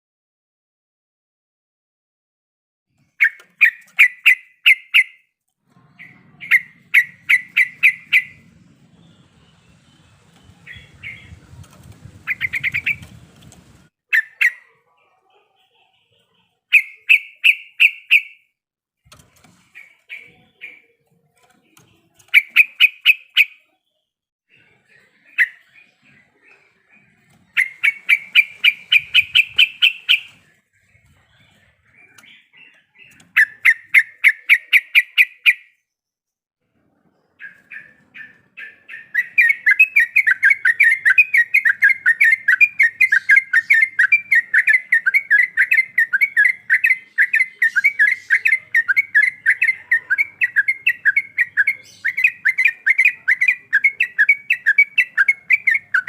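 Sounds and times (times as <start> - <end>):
bird singing quick notes: 5.9 - 14.8, 27.0 - 35.8
faint low rumble: 8.0 - 13.9.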